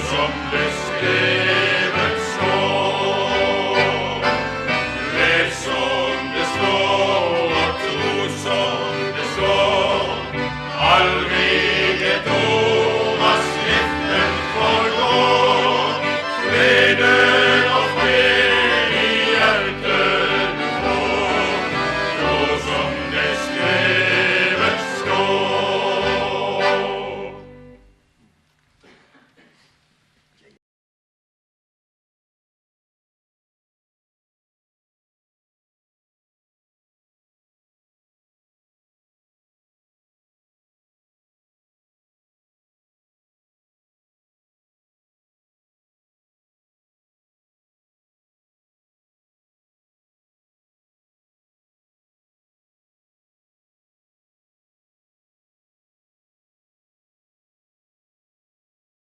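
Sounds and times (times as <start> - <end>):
vocal group singing: 0.0 - 27.6
instrumental accompaniment: 0.0 - 28.2.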